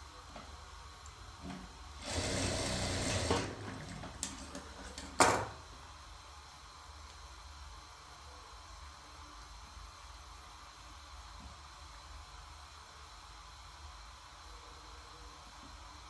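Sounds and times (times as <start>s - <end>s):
sewing machine running: 2.0s - 5.0s.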